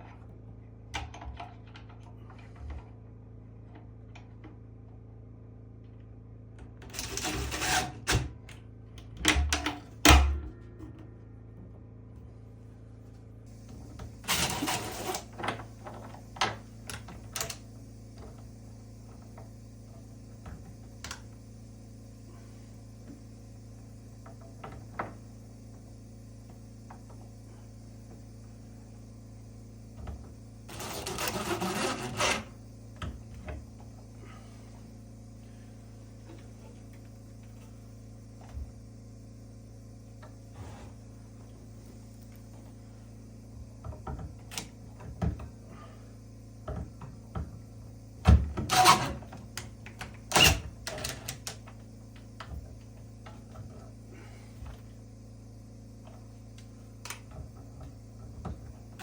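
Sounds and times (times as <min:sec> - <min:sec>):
low hum: 0:10.1 - 0:14.8
woodworking tool bursts: 0:30.6 - 0:32.9, 0:48.6 - 0:51.6.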